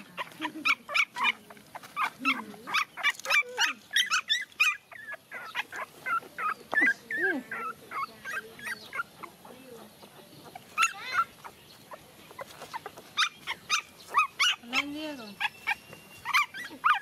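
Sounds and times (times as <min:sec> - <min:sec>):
puppies whimpering and crying: 0:00.0 - 0:17.0.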